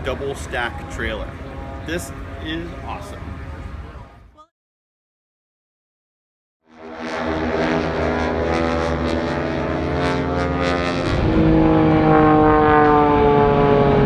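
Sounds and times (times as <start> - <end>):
propeller aircraft engines droning: 0.0 - 4.2, 6.8 - 14.0.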